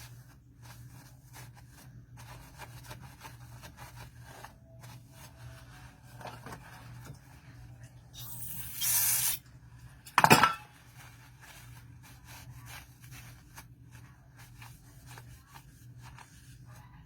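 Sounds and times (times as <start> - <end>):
aerosol spray hiss: 8.2 - 9.4.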